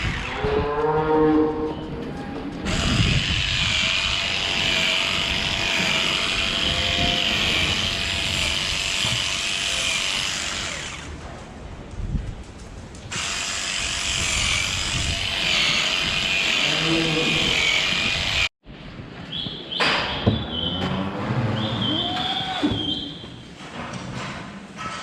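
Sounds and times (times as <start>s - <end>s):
power tool whining: 2.7s - 11.2s, 13.1s - 18.5s.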